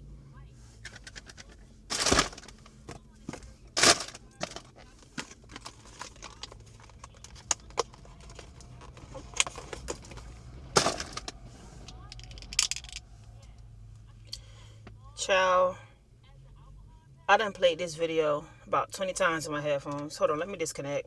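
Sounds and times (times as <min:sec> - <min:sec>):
objects being handled: 0:00.8 - 0:13.0.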